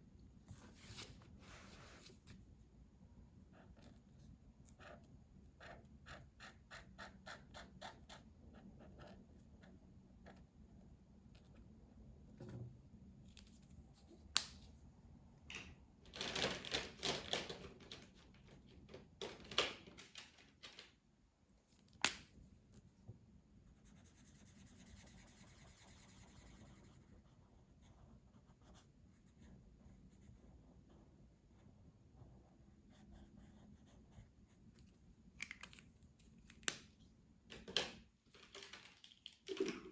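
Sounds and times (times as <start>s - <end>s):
coloring strokes scratching on paper: 23.7s - 31.2s.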